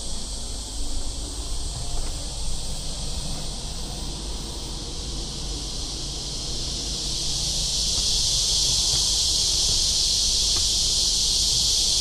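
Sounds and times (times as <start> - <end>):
cicadas buzzing: 0.0 - 12.0
soft bumps: 7.8 - 12.0.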